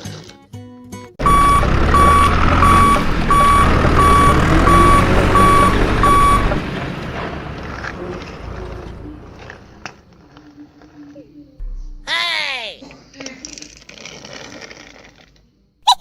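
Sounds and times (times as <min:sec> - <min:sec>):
truck reversing alarm beeping: 0:01.2 - 0:10.0
low engine rumble: 0:01.2 - 0:12.1.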